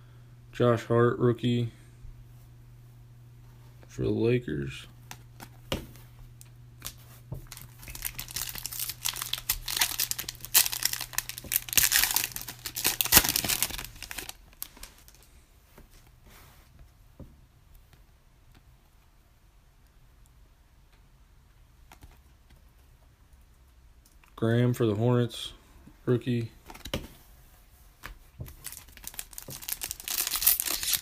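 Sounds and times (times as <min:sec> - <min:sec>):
card pack wrapper tearing and crinkling: 0:06.8 - 0:15.3, 0:28.5 - 0:31.0.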